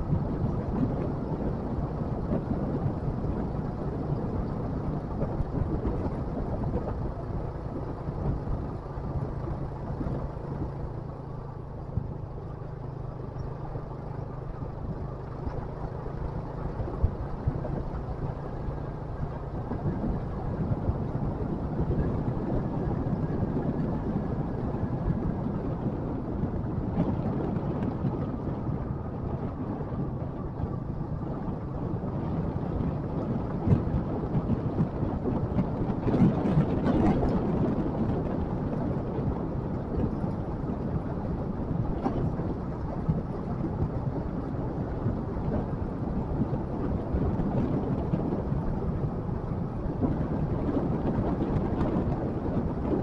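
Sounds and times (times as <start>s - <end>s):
motorcycle engine drone: 0.0s - 53.0s
road noise: 0.0s - 53.0s
wind noise on microphone: 0.0s - 53.0s.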